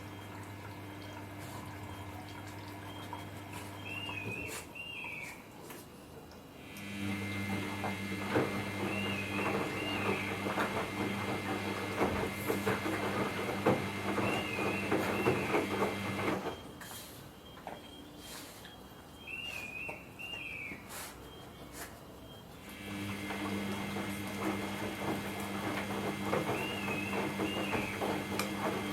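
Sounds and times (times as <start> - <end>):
washing machine drum turning: 7.1 - 16.8, 22.9 - 28.9.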